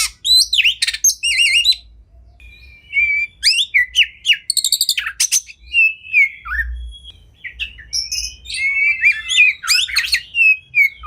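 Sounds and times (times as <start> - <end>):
songbird singing varied whistles: 2.4 - 11.0.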